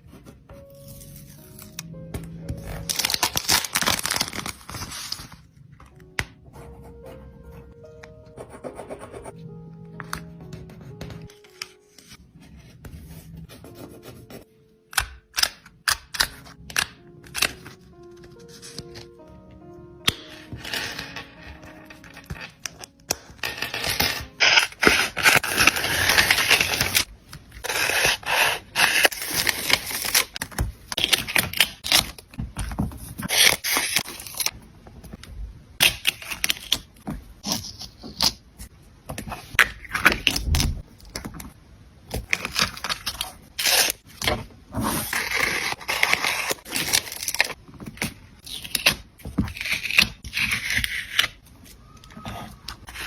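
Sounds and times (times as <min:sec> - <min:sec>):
paper crinkling and tearing: 0:02.5 - 0:05.5, 0:20.1 - 0:34.6, 0:42.1 - 0:53.0.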